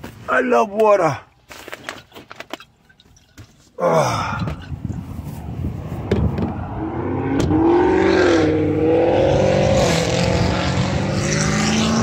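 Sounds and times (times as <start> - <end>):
hot rod engine revving: 6.8 - 12.0.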